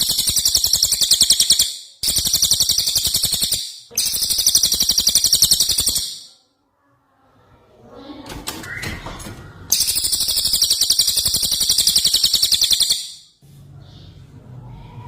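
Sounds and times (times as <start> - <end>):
bird chirping and trilling: 0.0 - 6.4, 8.6 - 14.2.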